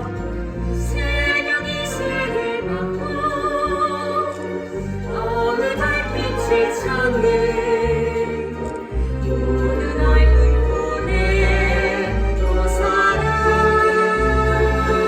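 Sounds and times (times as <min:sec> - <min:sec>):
orchestral backing: 0:00.0 - 0:15.0
voices singing held notes: 0:05.1 - 0:15.0.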